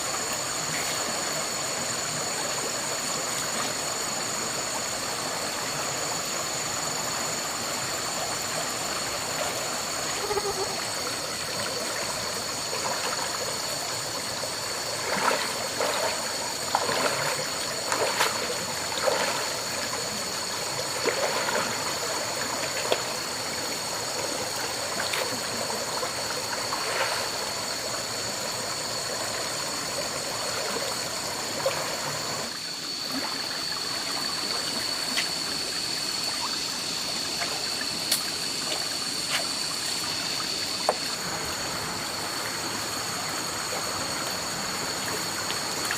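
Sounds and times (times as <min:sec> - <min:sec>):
running water: 0:00.0 - 0:45.9
splashes and knocks: 0:15.0 - 0:19.6, 0:20.9 - 0:21.8.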